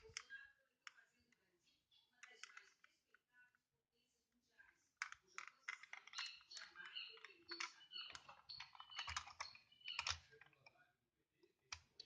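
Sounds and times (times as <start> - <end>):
toy robot plastic clicking and rattling: 2.2 - 3.0, 5.0 - 10.7.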